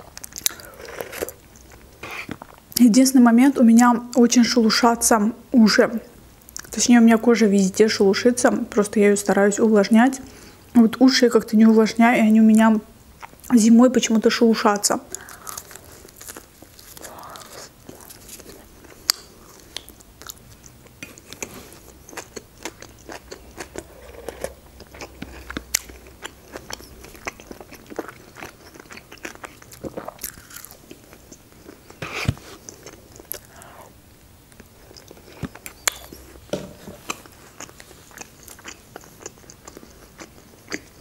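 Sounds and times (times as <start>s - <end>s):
biting and chewing food: 15.1s - 33.5s, 34.5s - 41.0s
mouth clicks: 35.4s - 36.3s.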